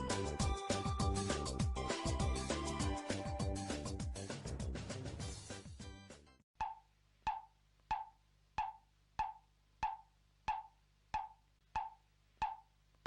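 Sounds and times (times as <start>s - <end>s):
wood block ticks: 6.6s - 12.7s.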